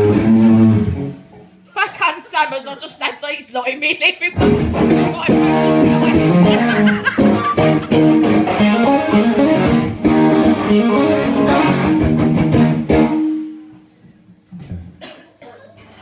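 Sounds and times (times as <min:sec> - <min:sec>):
bass guitar: 0:00.0 - 0:01.6, 0:04.4 - 0:13.9
electric guitar: 0:00.0 - 0:01.7, 0:04.4 - 0:15.0
live band playing amplified music: 0:04.4 - 0:13.7.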